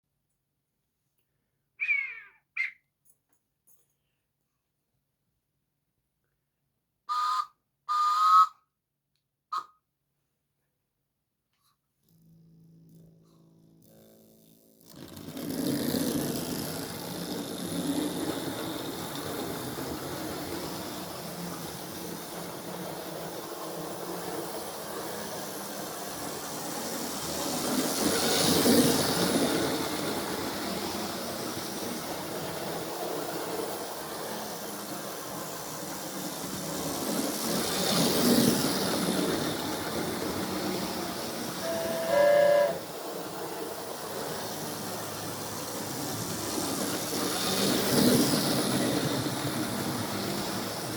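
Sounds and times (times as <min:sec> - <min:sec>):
model train running: 0:07.1 - 0:08.5, 0:12.0 - 0:50.9
train whistle: 0:07.1 - 0:08.6, 0:09.5 - 0:09.8, 0:41.5 - 0:43.1.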